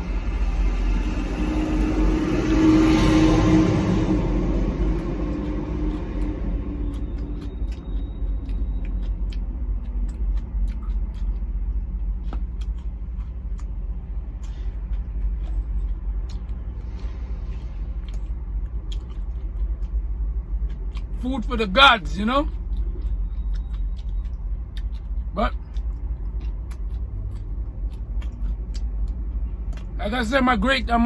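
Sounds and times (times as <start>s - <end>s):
truck idling: 12.0s - 23.1s.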